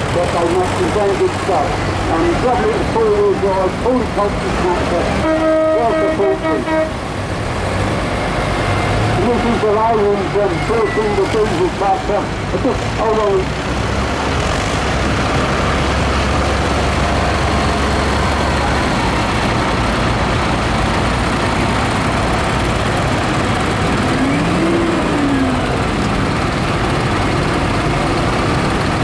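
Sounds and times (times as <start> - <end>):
tractor engines rumbling: 0.0 - 29.0.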